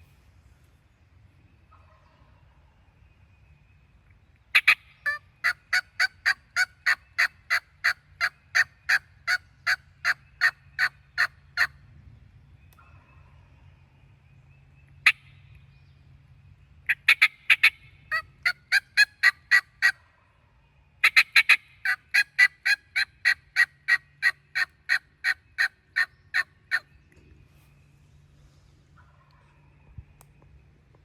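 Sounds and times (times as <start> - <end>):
turkey yelping: 4.6 - 11.7, 16.9 - 20.1, 21.0 - 26.9.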